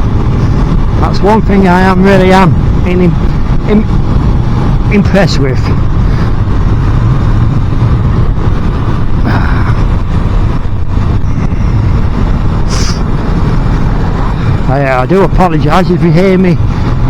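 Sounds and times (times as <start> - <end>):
motorcycle engine running: 0.0 - 17.0
wind rush and road noise: 0.0 - 17.0
brief hiss: 12.7 - 13.0.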